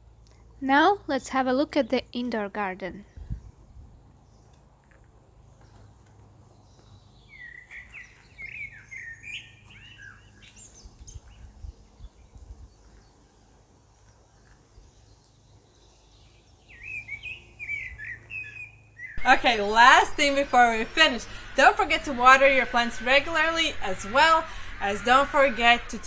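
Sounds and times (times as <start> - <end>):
small birds chirping: 1.6 - 26.0
faint low hum: 19.2 - 26.0.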